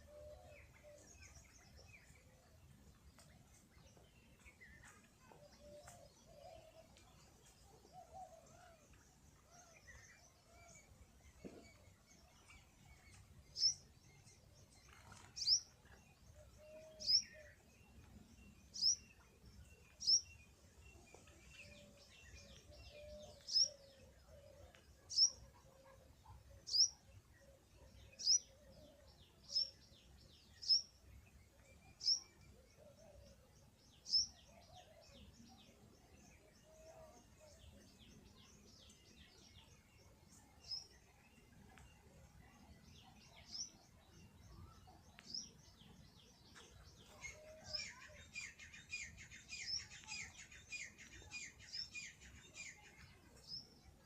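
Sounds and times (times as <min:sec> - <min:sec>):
bird chirping: 0:00.0 - 0:54.0.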